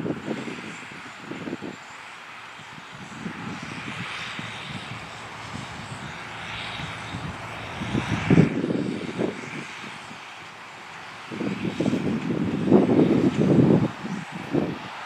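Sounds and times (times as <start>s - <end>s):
tractor diesel engine running: 1.3s - 14.7s
low rumbling: 3.0s - 14.1s.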